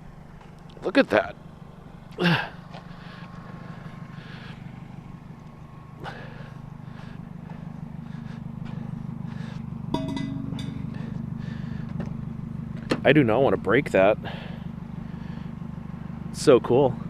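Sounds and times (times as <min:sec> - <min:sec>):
vehicle engine idling: 0:00.0 - 0:17.0
glass jug knock and ring: 0:10.0 - 0:10.9.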